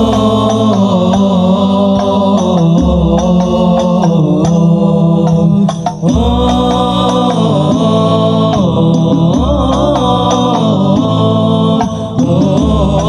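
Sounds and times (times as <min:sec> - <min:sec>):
choir singing held notes: 0:00.0 - 0:13.0
light percussion beat: 0:00.0 - 0:13.0.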